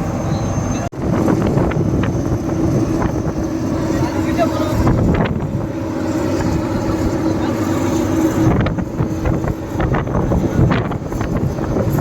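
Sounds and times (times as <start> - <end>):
whine: 0.0 - 12.0.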